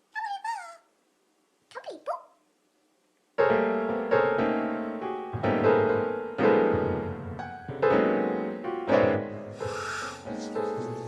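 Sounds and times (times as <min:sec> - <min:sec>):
slow sad piano chords: 0:03.4 - 0:11.0.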